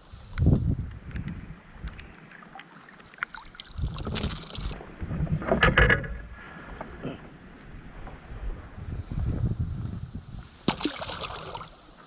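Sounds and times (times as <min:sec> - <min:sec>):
wind buffeting microphone: 0:00.0 - 0:02.2, 0:03.7 - 0:10.7.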